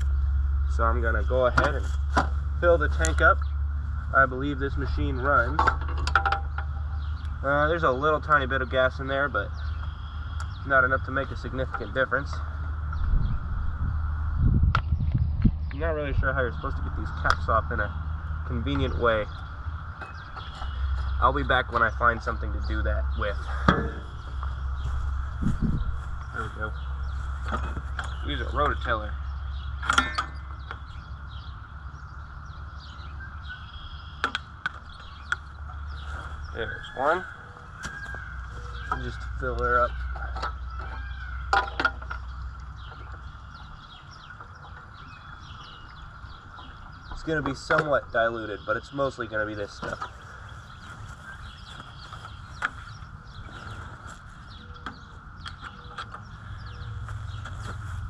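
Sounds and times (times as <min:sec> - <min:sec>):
low rumble: 0:00.0 - 0:40.7
faint bird chirps: 0:15.0 - 0:58.0.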